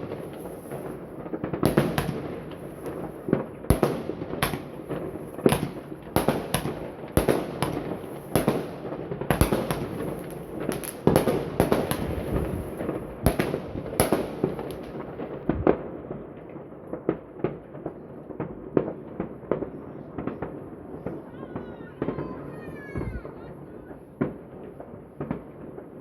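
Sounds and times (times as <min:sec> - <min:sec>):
fireworks bangs: 0:00.0 - 0:26.0
fireworks crackling: 0:00.0 - 0:26.0.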